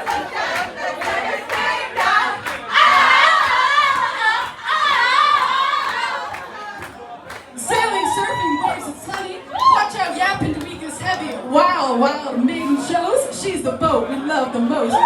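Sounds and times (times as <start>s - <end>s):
group of voices singing: 0.0s - 9.5s.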